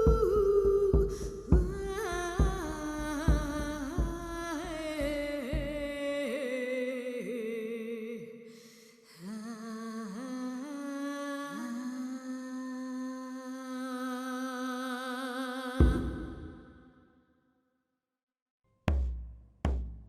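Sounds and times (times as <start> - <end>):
person humming melody: 0.0 - 5.9
low drum beating: 0.0 - 6.0, 15.8 - 16.6, 18.9 - 20.0.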